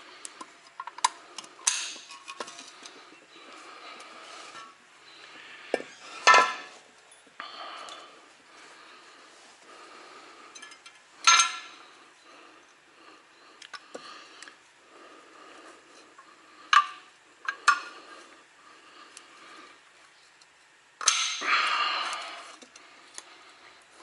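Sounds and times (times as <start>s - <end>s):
metal tools clanking: 10.5s - 11.8s.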